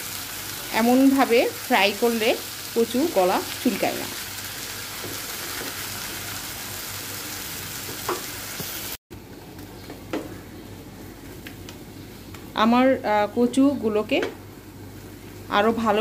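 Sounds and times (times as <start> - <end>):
food sizzling in a pan: 0.0 - 9.0.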